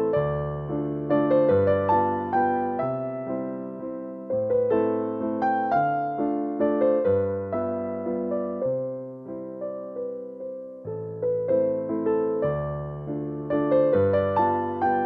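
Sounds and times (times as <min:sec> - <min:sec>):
solo piano waltz: 0:00.0 - 0:15.0.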